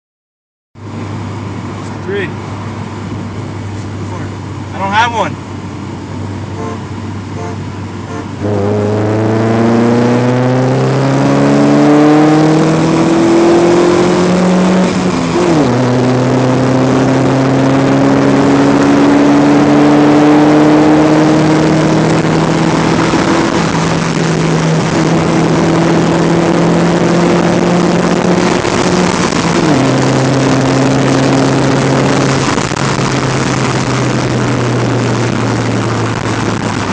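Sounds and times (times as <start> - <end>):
car engine accelerating through gears: 8.2 - 36.9.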